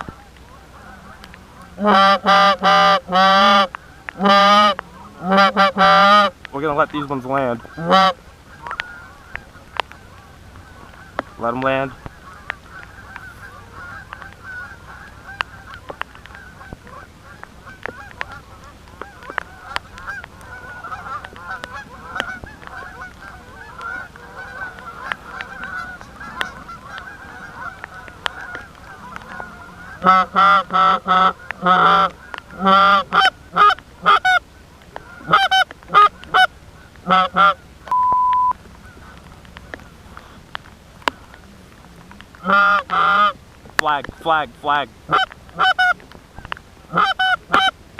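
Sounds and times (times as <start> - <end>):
geese honking: 0.0 - 47.8
short steady beep: 37.9 - 38.6.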